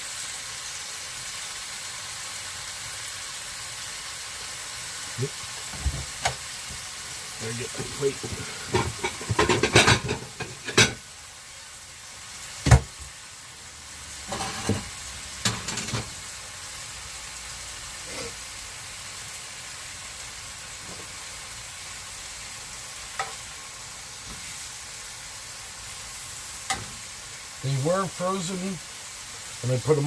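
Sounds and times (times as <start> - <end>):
kebabs sizzling: 0.0 - 30.0.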